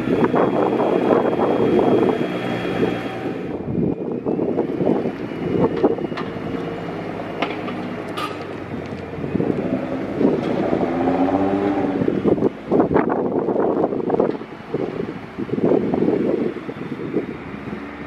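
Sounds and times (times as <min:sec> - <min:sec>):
wind on microphone: 0:00.0 - 0:06.8, 0:08.4 - 0:18.0
car engines running: 0:00.0 - 0:18.0
car engine revving: 0:06.8 - 0:12.9.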